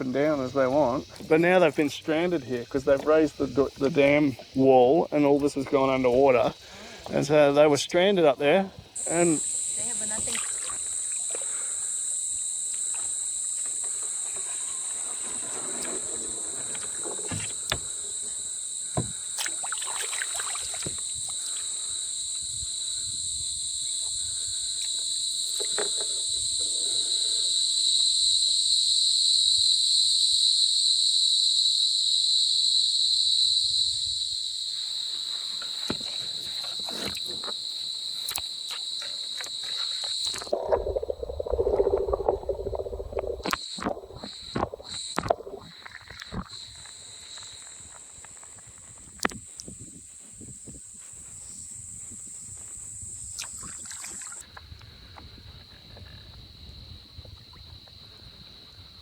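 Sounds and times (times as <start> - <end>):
high-pitched insect drone: 9.0 - 54.6
low rumbling noise: 40.5 - 45.6.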